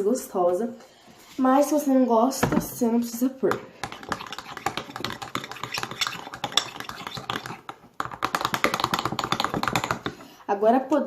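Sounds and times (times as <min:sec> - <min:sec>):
slime being stirred in pot: 0:02.6 - 0:10.5.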